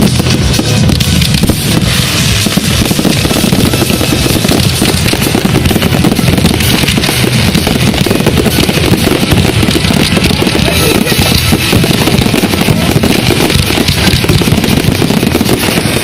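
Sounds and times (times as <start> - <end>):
fireworks bangs and crackling: 0.0 - 16.0.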